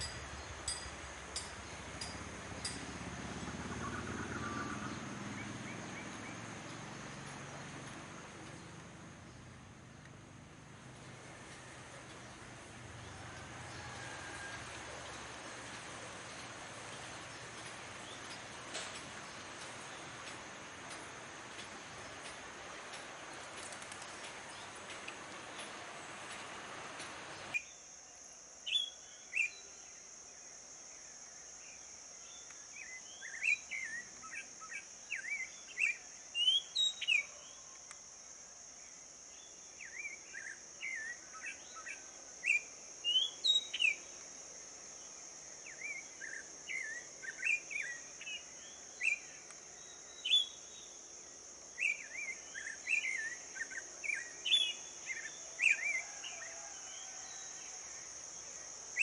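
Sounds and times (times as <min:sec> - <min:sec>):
insects droning: 0:00.0 - 0:59.0
birds chirping: 0:11.0 - 0:27.6.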